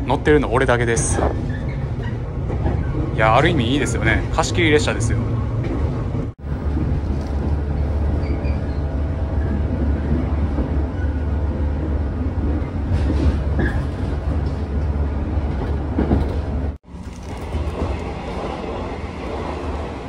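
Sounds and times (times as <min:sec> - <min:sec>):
train running gear rumble: 0:00.0 - 0:20.0
wheels clacking over rail joints: 0:05.6 - 0:20.0.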